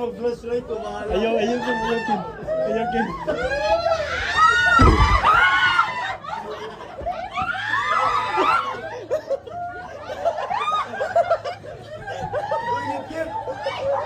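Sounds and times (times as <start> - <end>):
people laughing: 0.7 - 14.0
people shrieking: 1.4 - 14.0
low thump: 4.8 - 5.5.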